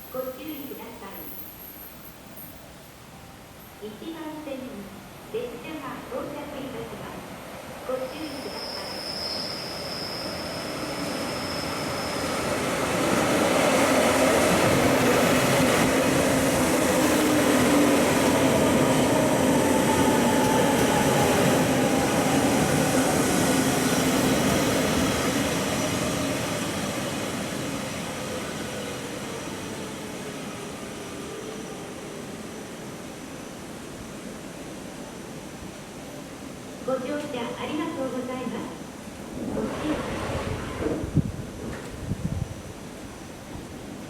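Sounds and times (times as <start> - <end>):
train wheels rumbling on rail: 39.2 - 44.0.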